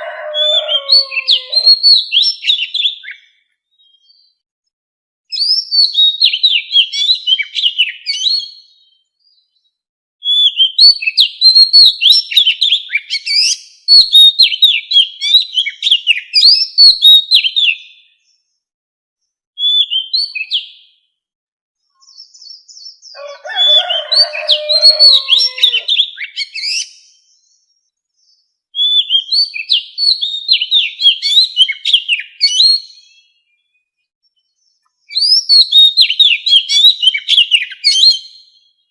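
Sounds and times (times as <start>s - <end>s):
lower rough bird call: 0.0s - 2.0s, 23.2s - 26.7s
bird singing whistled notes: 0.0s - 4.4s, 5.3s - 18.5s, 19.6s - 21.0s, 22.0s - 38.9s.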